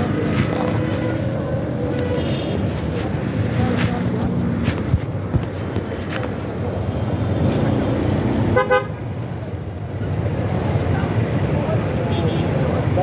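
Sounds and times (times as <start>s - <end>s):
road traffic rumble: 0.0s - 13.0s
vehicle horn honking: 8.6s - 9.0s.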